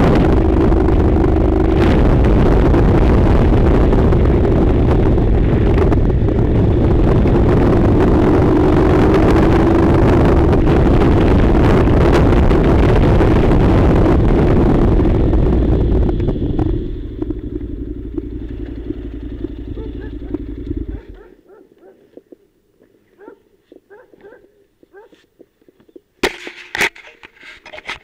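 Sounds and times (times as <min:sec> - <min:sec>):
motorcycle engine running: 0:00.0 - 0:21.5.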